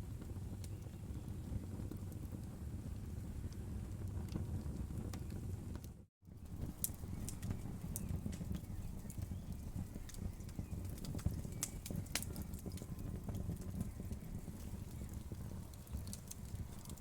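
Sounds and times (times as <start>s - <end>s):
low rumble of flames: 0.0s - 17.0s
wood fire crackling: 0.0s - 17.0s.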